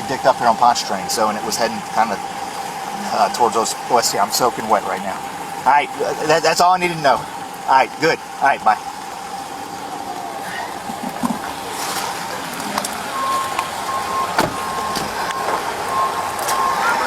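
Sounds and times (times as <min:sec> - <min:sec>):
electronic beeper: 0:13.2 - 0:17.0.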